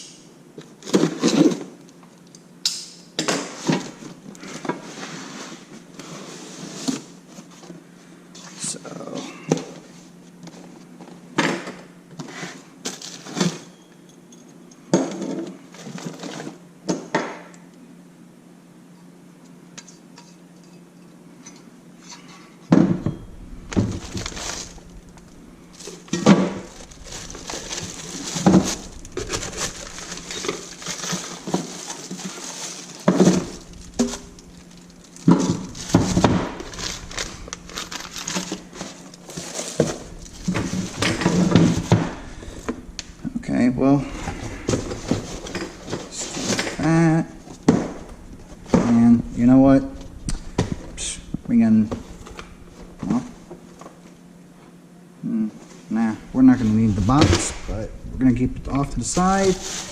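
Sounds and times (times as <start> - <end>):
packaging rustling: 23.6 - 43.2, 59.2 - 59.9.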